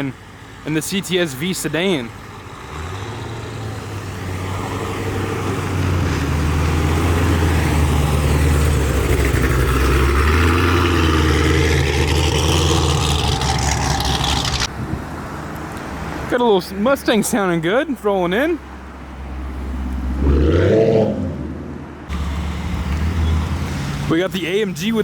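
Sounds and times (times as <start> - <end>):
car engine low rumble: 0.0 - 16.3.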